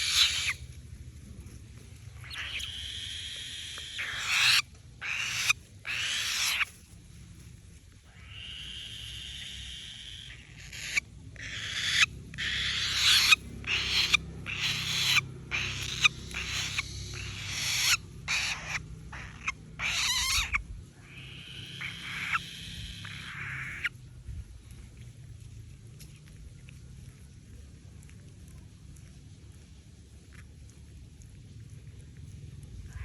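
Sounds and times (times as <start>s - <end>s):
falcon chick screeching: 0.0s - 0.6s, 2.2s - 6.7s, 8.1s - 23.9s.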